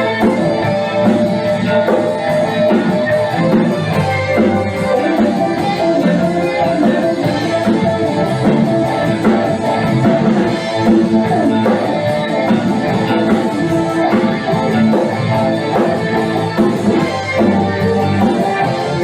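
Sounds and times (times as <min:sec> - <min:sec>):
drum kit steady beat: 0:00.0 - 0:19.0
guitar: 0:00.0 - 0:19.0.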